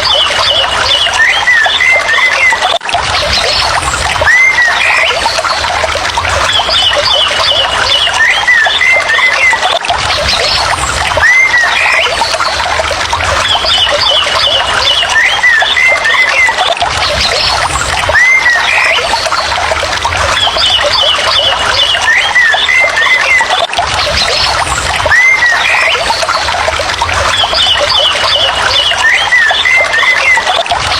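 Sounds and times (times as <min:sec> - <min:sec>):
bird whistling: 0:00.1 - 0:02.8, 0:11.2 - 0:12.4, 0:18.1 - 0:19.2, 0:20.5 - 0:23.5, 0:25.0 - 0:26.2, 0:27.3 - 0:30.6.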